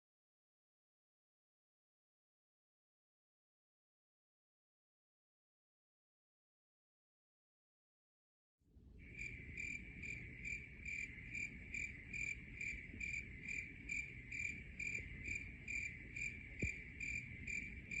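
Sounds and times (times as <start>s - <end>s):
faint low rumble: 8.8s - 18.0s
cricket chirping: 9.0s - 18.0s.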